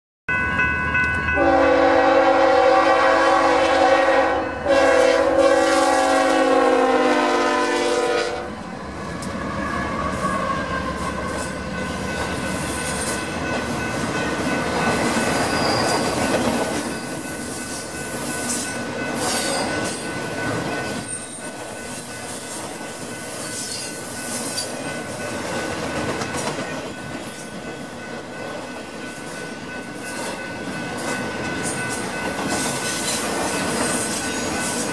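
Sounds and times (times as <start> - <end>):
train wheels rumbling: 0.5 - 34.9
train air horn blasts: 1.4 - 8.6.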